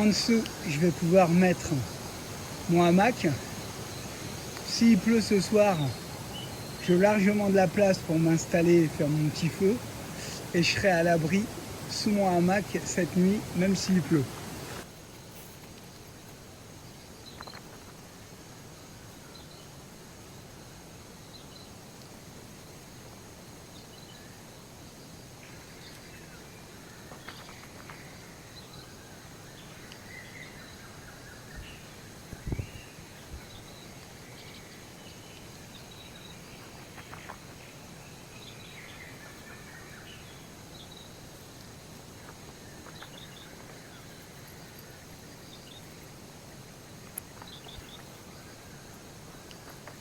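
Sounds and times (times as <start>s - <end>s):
birds chirping and calling: 0.0s - 14.8s
steady outdoor hiss: 0.0s - 50.0s.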